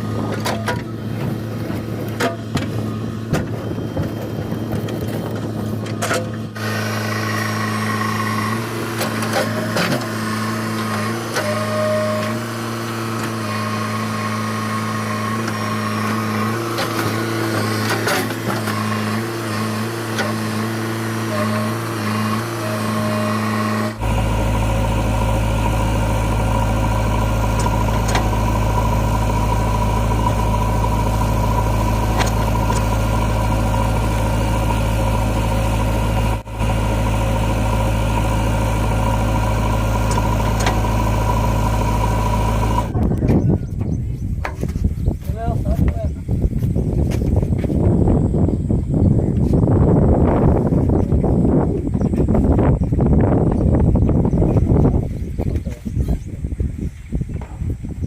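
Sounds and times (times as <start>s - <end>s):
deep steady hum: 0.0s - 45.2s
diesel engine running: 0.0s - 58.0s.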